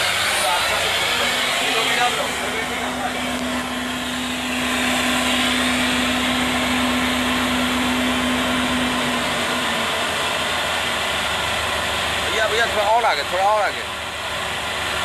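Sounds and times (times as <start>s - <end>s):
low hum: 0.6s - 12.3s.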